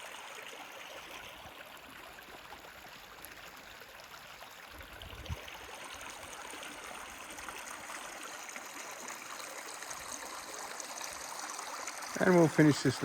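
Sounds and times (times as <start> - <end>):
creek water flowing over rocks: 0.0 - 13.0.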